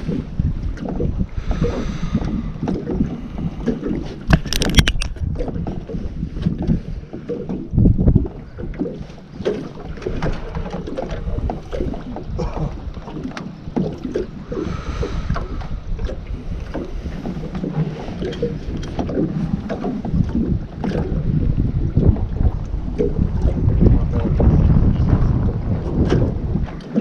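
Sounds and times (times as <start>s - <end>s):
water slapping boat hull: 0.0s - 27.0s
wind buffeting microphone: 0.0s - 27.0s
small knocks and clicks: 4.3s - 5.2s.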